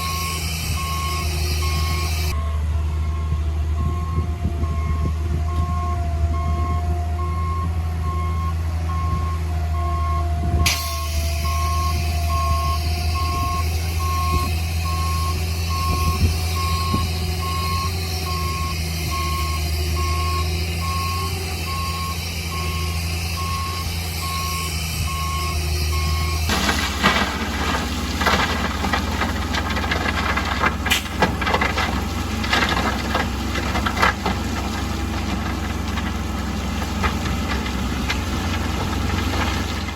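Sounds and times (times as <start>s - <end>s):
reversing alarm beeping: 0.0s - 29.2s
diesel engine running: 0.0s - 39.9s
metal clanks and knocks: 26.5s - 39.9s.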